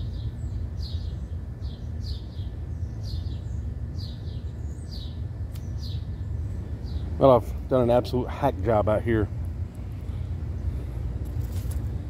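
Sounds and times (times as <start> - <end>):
songbird chirping: 0.0 - 8.2
steady low rumble: 0.0 - 12.0.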